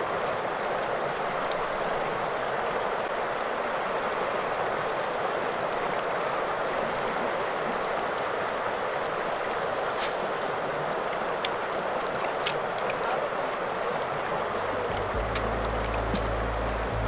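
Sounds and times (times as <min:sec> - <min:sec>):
river water rushing: 0:00.0 - 0:17.0
water splash: 0:14.6 - 0:17.0.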